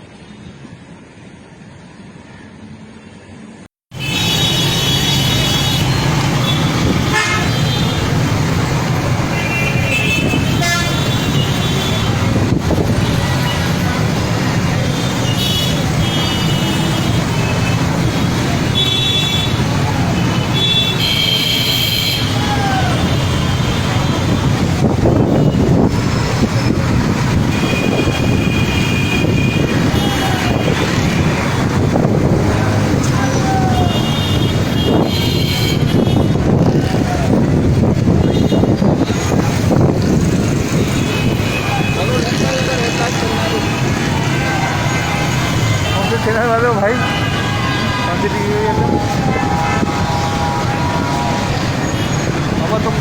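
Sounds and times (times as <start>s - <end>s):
street traffic: 0.0s - 53.0s
car horns honking: 4.0s - 13.8s, 27.3s - 36.8s, 38.0s - 39.7s, 40.7s - 48.3s
storm wind rushing: 24.1s - 35.1s, 35.8s - 41.5s, 47.6s - 52.7s.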